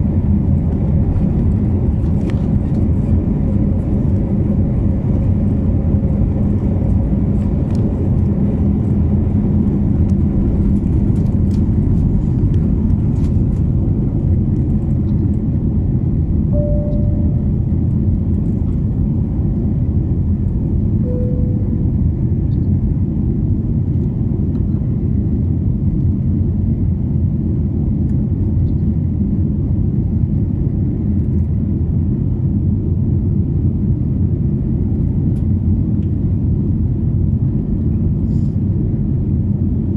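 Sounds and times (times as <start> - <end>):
low hum: 0.0 - 33.4
aircraft cabin engine rumble: 0.0 - 39.9
faint tones: 16.6 - 17.6, 21.1 - 21.8.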